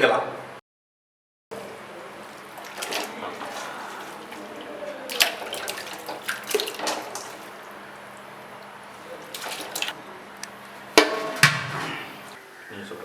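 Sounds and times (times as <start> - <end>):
chicken splashing into water: 1.6 - 10.0, 10.9 - 12.4
metal clanks against pot: 11.0 - 12.2.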